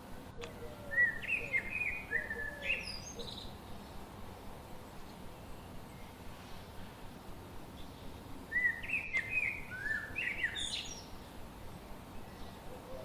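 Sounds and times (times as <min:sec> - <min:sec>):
songbird singing: 0:00.0 - 0:06.3, 0:07.6 - 0:13.0
background hiss: 0:00.0 - 0:13.0
faint lower bird calls: 0:00.4 - 0:03.6.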